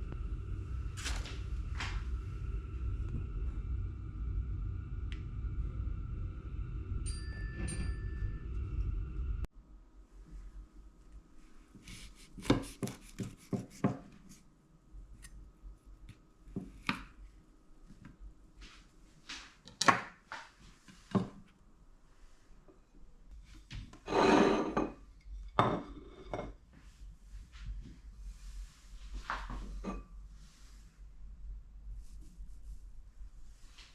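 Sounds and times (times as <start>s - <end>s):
dishes and utensils clinking: 24.0s - 26.6s.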